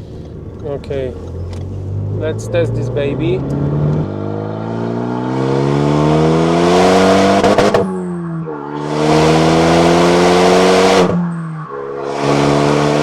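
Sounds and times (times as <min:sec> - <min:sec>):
gear upshifts: 0:00.0 - 0:05.2
car engine accelerating: 0:00.0 - 0:13.0.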